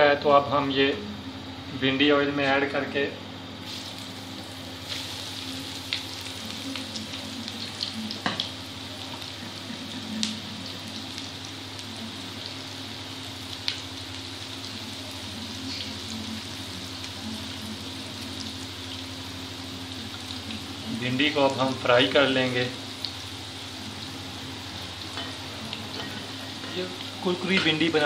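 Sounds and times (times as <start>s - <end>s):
food sizzling in hot oil: 3.6s - 28.0s.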